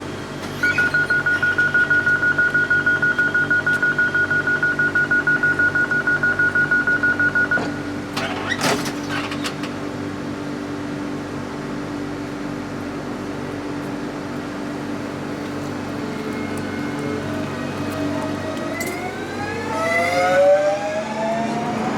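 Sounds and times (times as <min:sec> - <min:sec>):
train electric hum: 0:00.0 - 0:21.9
rapid high warning beeps: 0:00.6 - 0:07.8.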